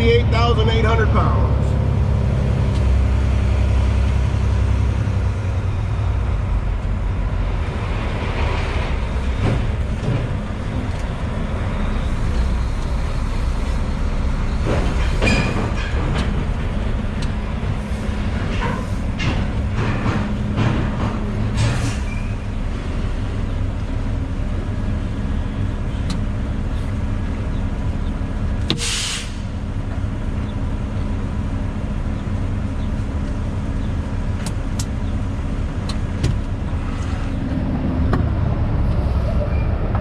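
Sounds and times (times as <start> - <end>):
truck diesel engine running: 0.0 - 39.3
air hiss: 28.8 - 29.5.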